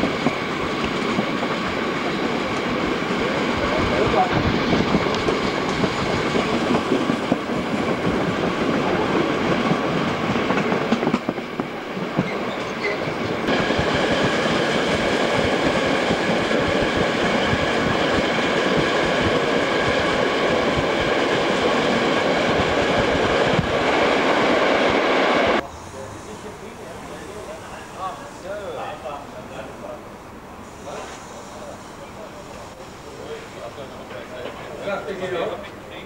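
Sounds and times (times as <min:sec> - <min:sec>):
train wheels clattering over rail joints: 0:04.1 - 0:24.0.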